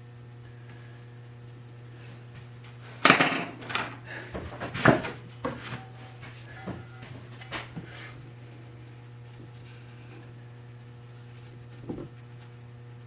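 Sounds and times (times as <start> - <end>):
electrical hum: 0.0 - 13.0
hard parts knocking on wood: 3.0 - 5.8.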